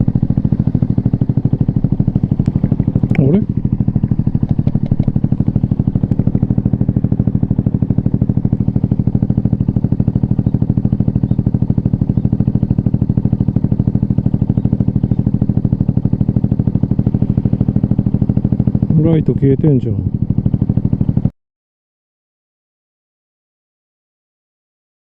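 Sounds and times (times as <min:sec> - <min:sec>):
motorcycle engine idling: 0:00.0 - 0:21.3.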